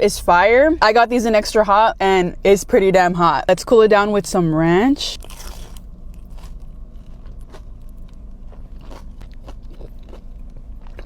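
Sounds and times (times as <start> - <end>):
crunchy chewing: 5.2 - 11.0.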